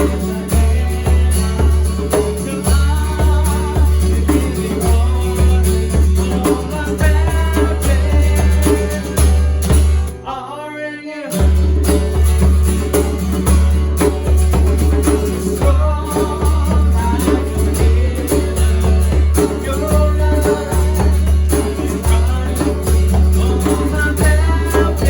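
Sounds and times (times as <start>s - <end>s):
person singing: 0.0s - 9.4s, 15.1s - 25.0s
heavy bass beat: 0.0s - 10.1s, 11.4s - 25.0s
worship band playing: 0.0s - 10.6s, 11.4s - 25.0s.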